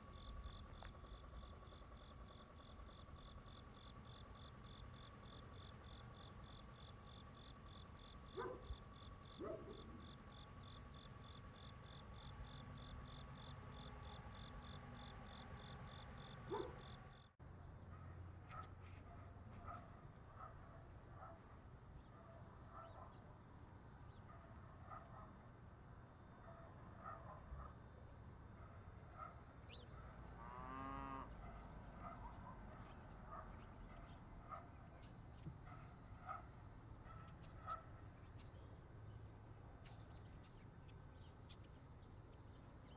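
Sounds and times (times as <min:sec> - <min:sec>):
crickets chirping: 0:00.0 - 0:17.2.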